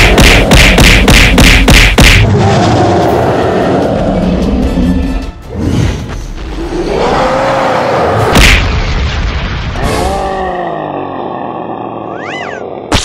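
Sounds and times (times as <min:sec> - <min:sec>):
background music: 0:02.2 - 0:07.7
cartoon power-up tone: 0:12.2 - 0:12.6.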